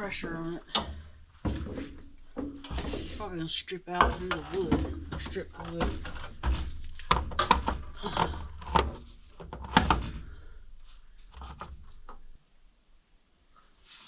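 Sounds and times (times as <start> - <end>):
wood scraping: 0.0 - 12.6
wooden boards knocking: 3.9 - 10.5.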